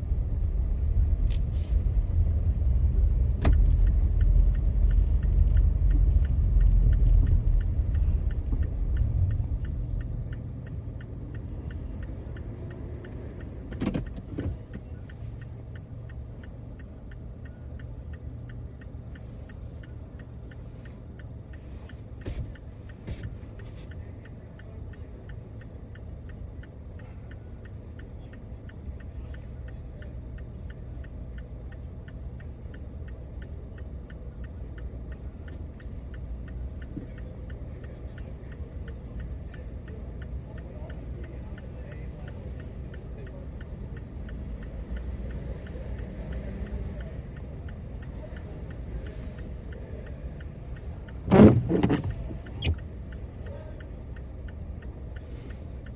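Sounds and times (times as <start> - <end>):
car engine and road noise: 0.0 - 55.9
sharp clicks: 50.8 - 54.6.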